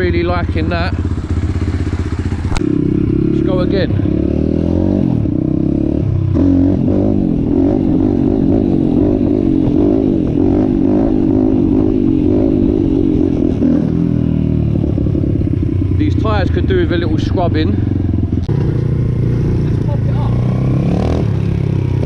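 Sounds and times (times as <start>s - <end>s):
motorbike engine revving: 0.0s - 22.0s.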